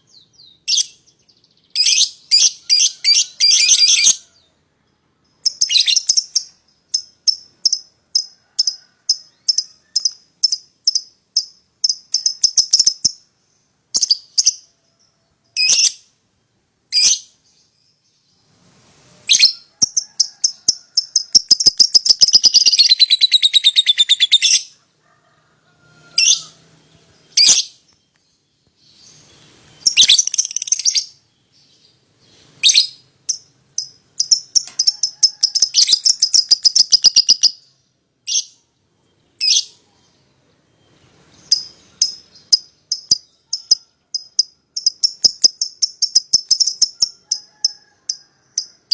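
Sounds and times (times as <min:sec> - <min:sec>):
lovebirds chirping: 0:00.0 - 0:47.9
bird chattering trill: 0:19.4 - 0:24.7, 0:32.7 - 0:37.7, 0:41.4 - 0:47.7.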